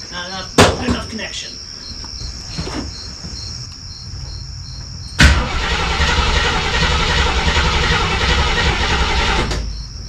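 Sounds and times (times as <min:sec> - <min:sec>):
engine starter cranking: 0:05.2 - 0:09.8.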